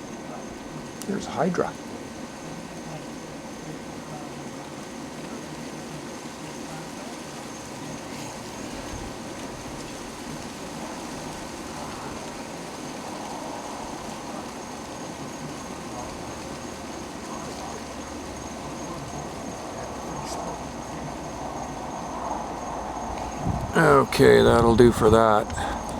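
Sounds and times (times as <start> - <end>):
faint high steady tone: 0.0 - 25.9
wind buffeting microphone: 7.8 - 25.9.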